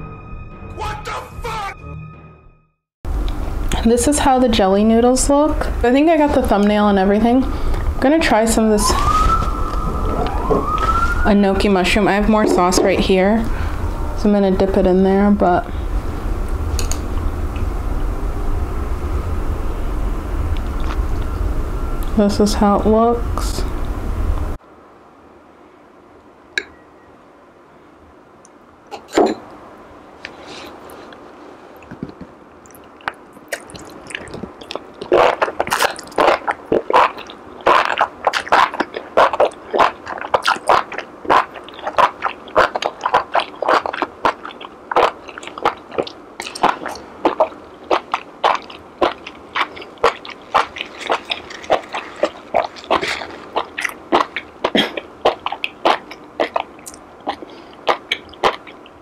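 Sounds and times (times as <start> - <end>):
crunchy chewing: 32.6 - 59.0.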